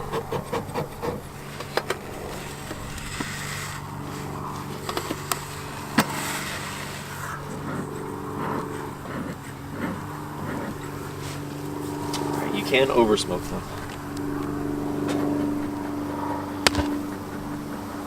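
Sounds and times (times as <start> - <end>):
bellows smoker hissing puffs: 0.0 - 12.6
steady low hum: 0.0 - 18.0.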